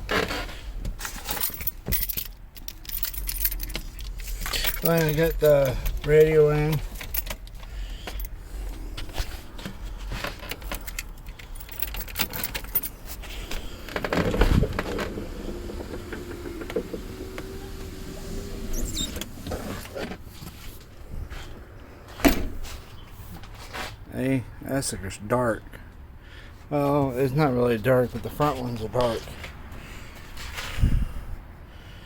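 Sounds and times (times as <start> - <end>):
clicks and handling noises: 0.1 - 15.1
electric window motor running: 14.7 - 19.6.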